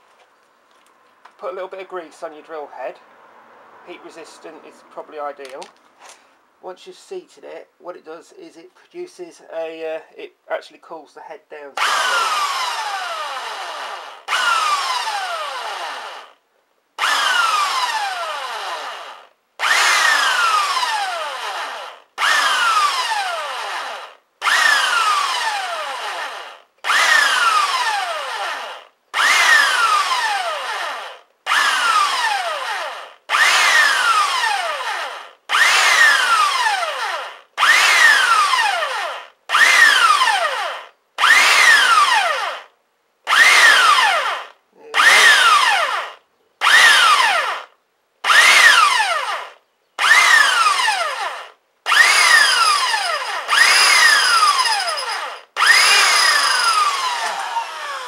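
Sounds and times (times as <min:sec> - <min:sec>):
electric drill boring through metal: 0:11.8 - 0:16.4, 0:17.0 - 0:42.7, 0:43.3 - 0:58.0.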